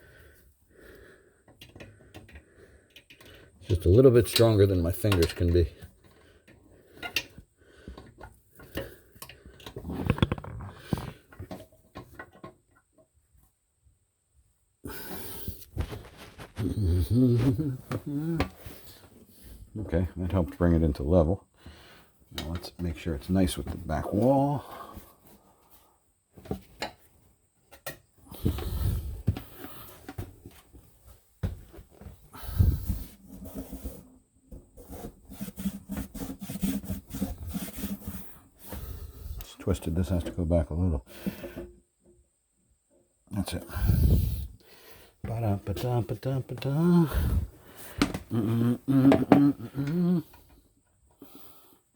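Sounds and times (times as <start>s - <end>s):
low rubbing and shuffling: 14.9s - 21.1s, 28.2s - 40.2s.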